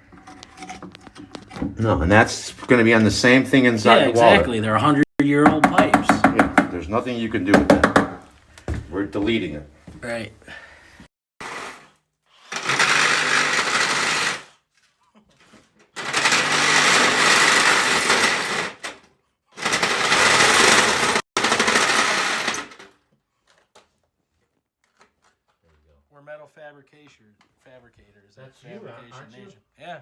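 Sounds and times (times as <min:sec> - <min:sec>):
power saw cutting steel pipe: 0:00.0 - 0:04.4.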